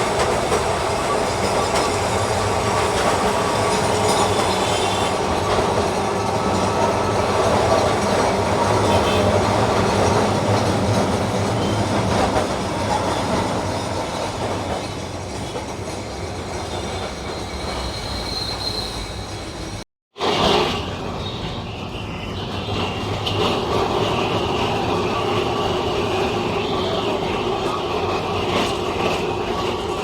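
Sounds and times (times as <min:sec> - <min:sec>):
tram rumbling on rails: 0:00.0 - 0:30.0
wheel squeal: 0:15.3 - 0:23.6.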